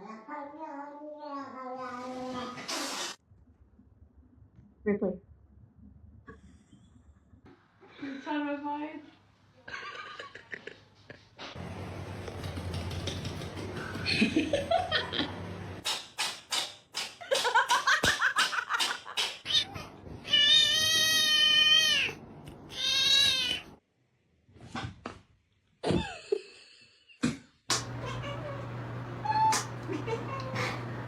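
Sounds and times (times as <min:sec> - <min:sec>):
cats meowing: 0:19.5 - 0:23.7, 0:27.8 - 0:31.0
cat yowling: 0:27.8 - 0:31.0.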